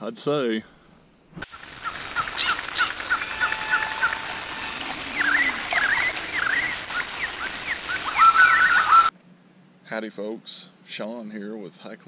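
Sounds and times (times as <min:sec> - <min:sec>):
songbirds chirping and whistling: 0:01.4 - 0:09.1.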